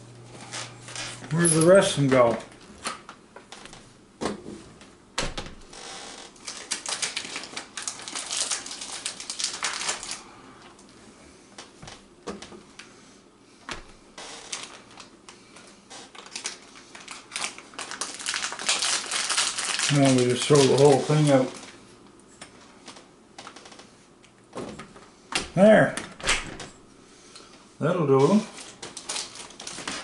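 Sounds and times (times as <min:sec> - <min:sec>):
plastic package crinkling: 0:06.3 - 0:10.3, 0:14.4 - 0:15.1, 0:16.0 - 0:21.8, 0:28.2 - 0:30.0.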